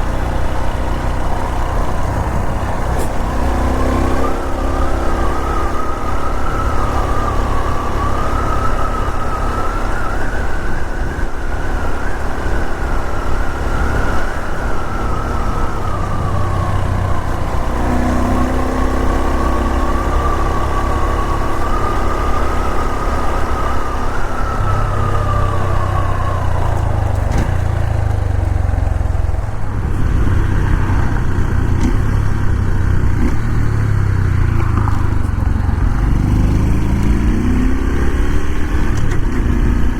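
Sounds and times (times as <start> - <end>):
high wavering whine: 0.0 - 31.6
motorcycle engine rumble: 0.0 - 39.9
wind noise: 0.0 - 39.9.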